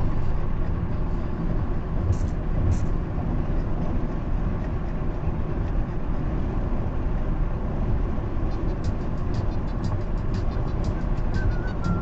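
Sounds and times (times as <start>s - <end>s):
car road and engine rumble: 0.0s - 12.0s
music with ticking beat: 8.4s - 12.0s.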